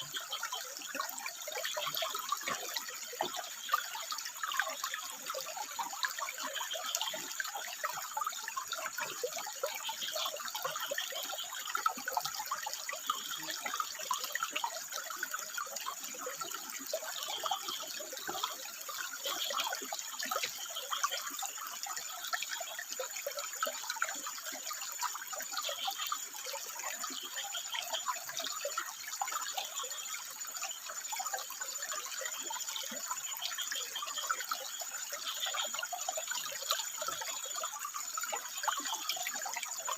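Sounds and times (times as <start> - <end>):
water trickling over rocks: 0.0 - 39.9
frog calls: 16.9 - 23.4.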